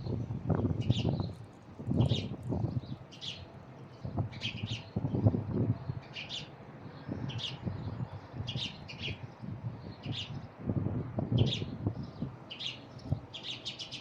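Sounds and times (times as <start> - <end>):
small birds chirping: 0.0 - 10.6, 11.3 - 14.0.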